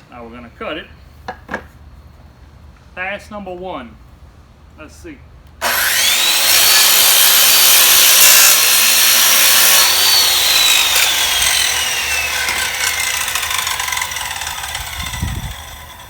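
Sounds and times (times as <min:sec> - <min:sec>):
circular saw cutting wood: 0:05.6 - 0:16.0
saw motor winding down: 0:05.6 - 0:16.0.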